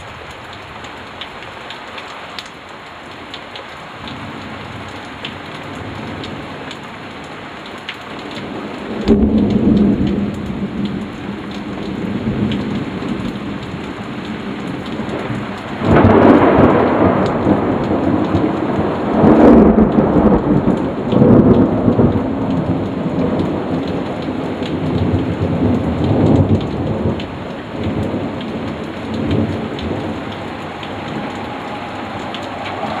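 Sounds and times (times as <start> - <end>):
steady rain: 0.0 - 33.0
thunder rumbling: 8.4 - 33.0.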